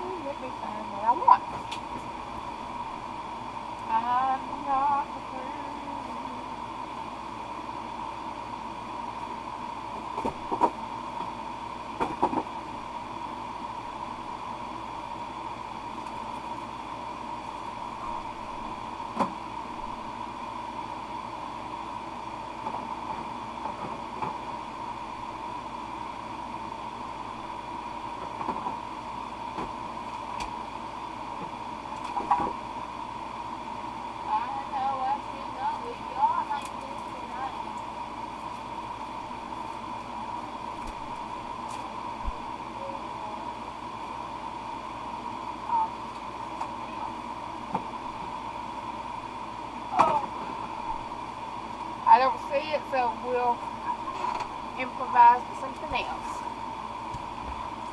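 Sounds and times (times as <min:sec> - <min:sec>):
electric fans whirring: 0:00.0 - 0:57.9
hum tone: 0:00.0 - 0:57.9.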